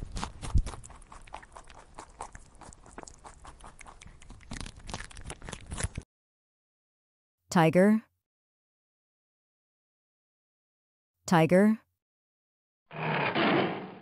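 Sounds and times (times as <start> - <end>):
rabbit chewing grass: 0.0 - 6.0.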